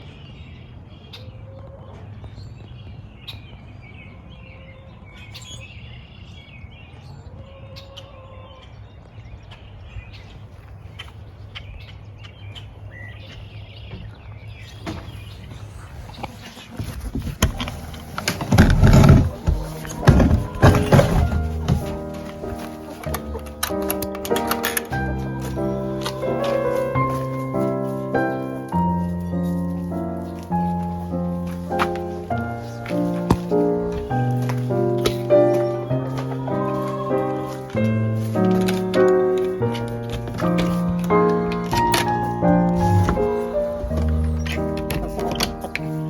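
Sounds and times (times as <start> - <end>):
chickens chirping: 0.0 - 46.0
low drawn-out chicken calls: 7.2 - 8.8, 16.1 - 29.0, 35.0 - 38.7
heavy thumps: 17.2 - 22.6, 40.0 - 45.2
music: 18.3 - 46.0.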